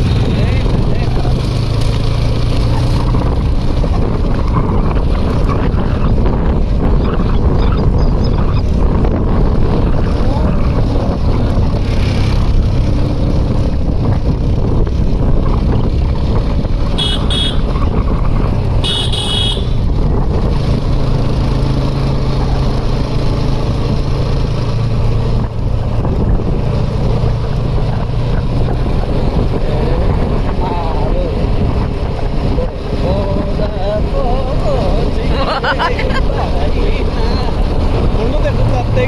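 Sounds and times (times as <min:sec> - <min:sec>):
vehicle engine running: 0:00.0 - 0:39.0
wind on microphone: 0:02.7 - 0:36.2
horn beeps: 0:17.0 - 0:17.7, 0:18.8 - 0:19.8.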